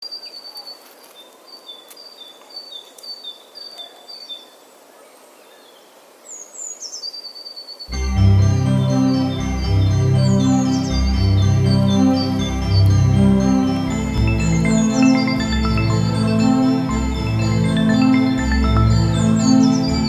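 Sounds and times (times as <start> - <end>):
outdoor ambience hiss: 0.0 - 20.0
bird chirping: 5.5 - 20.0
organ and piano music: 7.9 - 20.0.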